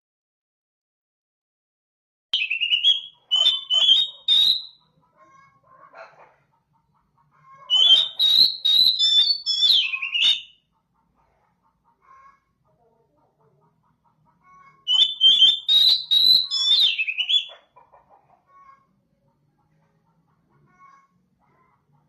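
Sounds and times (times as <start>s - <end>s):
bird whistling song with clicks: 2.4s - 4.7s, 7.7s - 10.5s, 14.9s - 17.6s.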